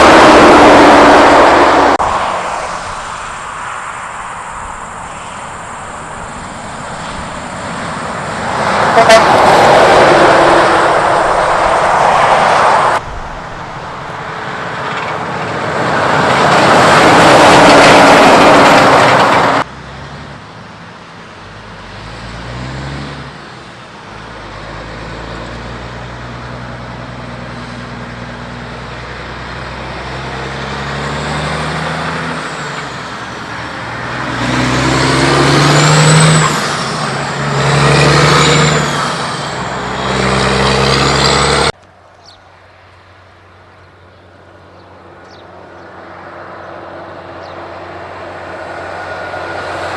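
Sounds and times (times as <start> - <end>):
high whine: 0.0 - 14.4
diesel engine shifting pitch: 0.0 - 20.0, 24.2 - 41.8
trucks driving past: 0.0 - 49.9.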